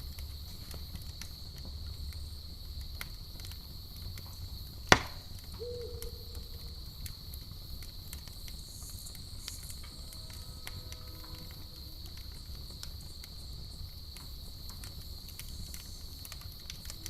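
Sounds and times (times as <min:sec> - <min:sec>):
campfire crackling and popping: 0:00.0 - 0:17.0
crickets chirring: 0:00.0 - 0:17.0
short low hoot: 0:05.6 - 0:06.8.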